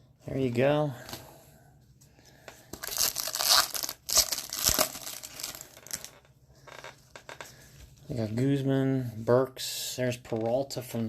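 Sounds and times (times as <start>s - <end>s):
foil wrapper tearing and crinkling: 2.8s - 6.1s.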